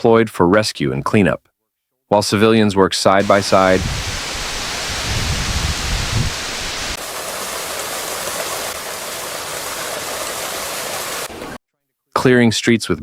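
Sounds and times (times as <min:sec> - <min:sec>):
rushing water: 0:03.2 - 0:11.6.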